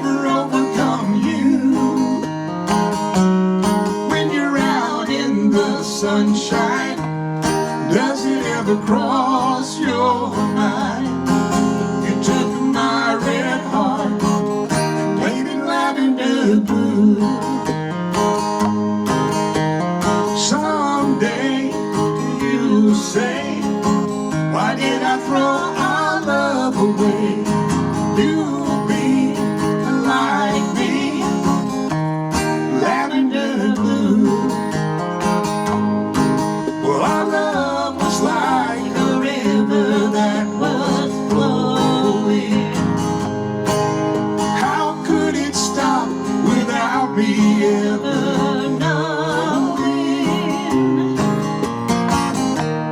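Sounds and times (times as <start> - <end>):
person singing: 0.0 - 2.3, 4.0 - 7.1, 7.8 - 17.8, 20.4 - 31.8, 32.6 - 34.7, 36.7 - 43.0, 44.5 - 51.4
acoustic guitar strummed and picked: 0.0 - 52.9.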